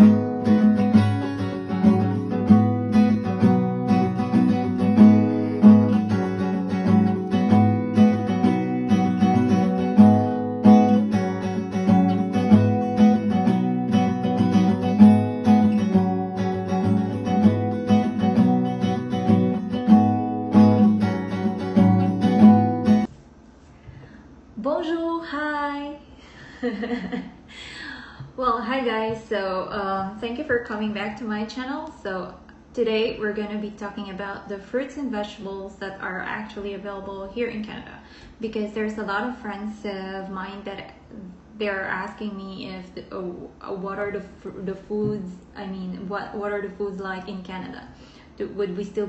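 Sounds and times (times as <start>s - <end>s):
acoustic guitar strumming: 0.0s - 23.1s.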